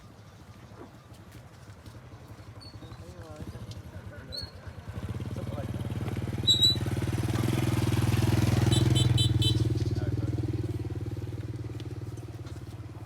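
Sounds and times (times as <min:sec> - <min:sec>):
motorbike engine passing by: 0:03.5 - 0:13.0.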